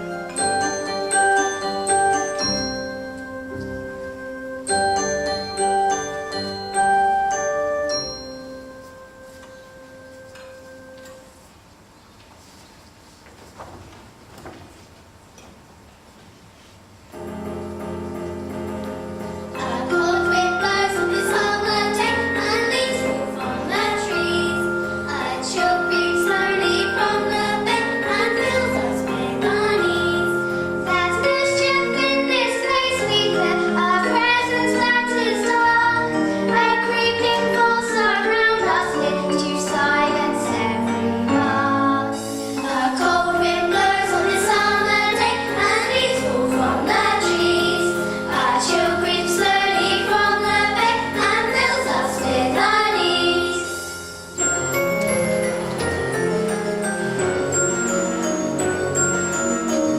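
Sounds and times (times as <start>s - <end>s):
instrumental accompaniment: 0.0s - 11.7s, 17.1s - 59.9s
children singing in chorus: 37.7s - 53.7s.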